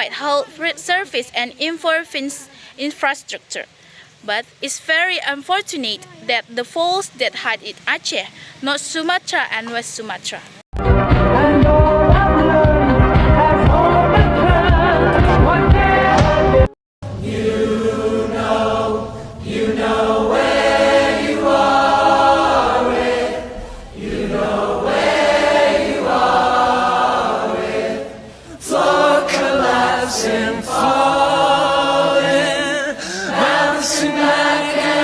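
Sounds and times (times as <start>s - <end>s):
choir singing: 10.8s - 35.0s.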